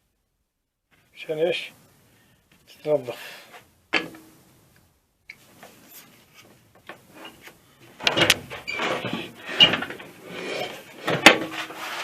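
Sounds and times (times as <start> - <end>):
metal parts clattering and scraping: 8.0 - 12.0.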